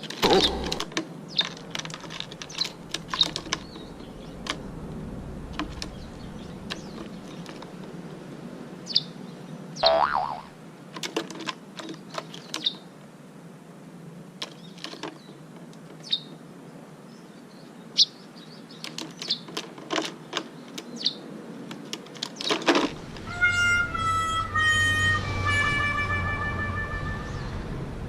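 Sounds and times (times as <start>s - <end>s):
small birds chirping: 0.0s - 1.7s, 2.3s - 4.7s, 5.6s - 8.1s, 8.8s - 10.5s, 11.8s - 13.0s, 14.4s - 22.6s
sharp clicks: 0.0s - 3.8s
music with held notes: 23.3s - 27.6s.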